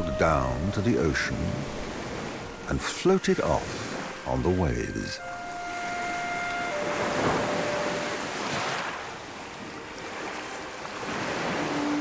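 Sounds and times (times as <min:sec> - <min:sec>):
ocean waves washing in: 0:00.0 - 0:12.0.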